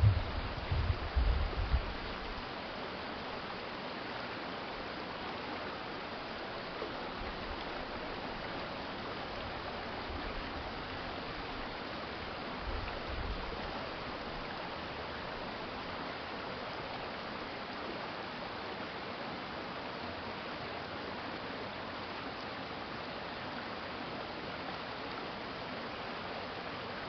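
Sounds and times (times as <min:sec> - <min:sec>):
brief low rumble: 0:00.0 - 0:01.8
stream flowing: 0:00.0 - 0:27.0.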